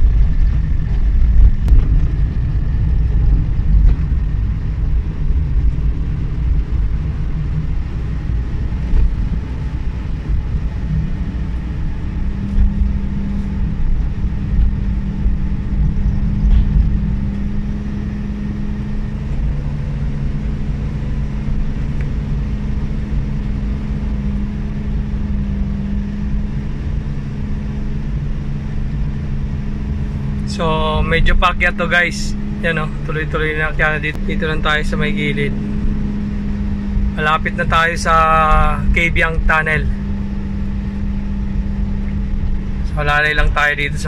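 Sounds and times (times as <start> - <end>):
car engine humming at steady revs: 0.0 - 44.0
road rumble: 0.0 - 44.0.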